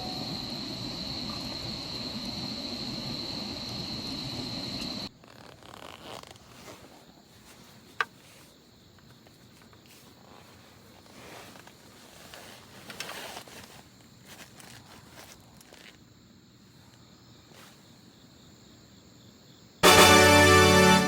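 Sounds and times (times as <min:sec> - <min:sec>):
faint rustling and handling: 0:05.2 - 0:18.0.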